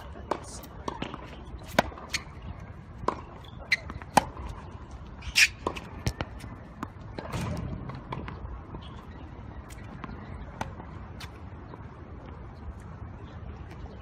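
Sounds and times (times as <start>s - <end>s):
tennis ball bouncing on court: 0.1s - 2.3s, 3.0s - 4.6s, 5.4s - 9.0s.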